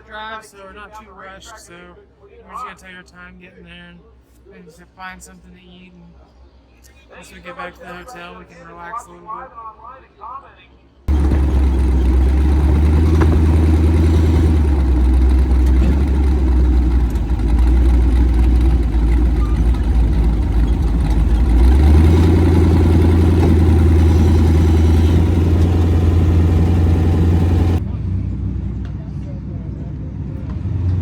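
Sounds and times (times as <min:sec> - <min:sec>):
car engine and exhaust droning: 0:11.1 - 0:31.0.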